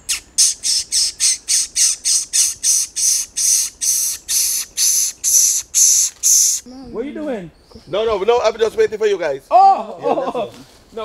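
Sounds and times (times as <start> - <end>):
bird harsh rasping squawks: 0.0 - 6.7.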